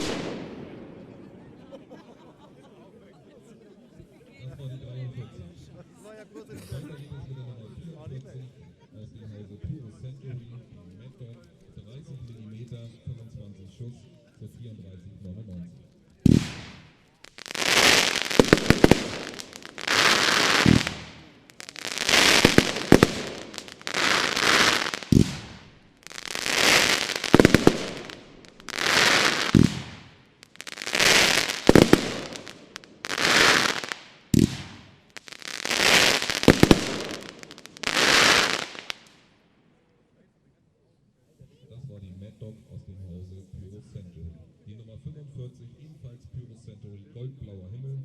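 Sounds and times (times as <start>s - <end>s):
firework bursts with sharp cracks: 0.0s - 1.4s, 16.2s - 39.4s
firework launch thumps: 22.2s - 25.8s, 29.1s - 30.2s, 33.2s - 34.9s.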